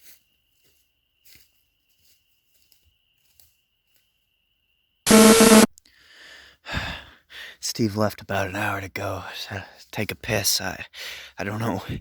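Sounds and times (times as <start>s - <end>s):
loud short tonal burst: 5.1s - 5.7s.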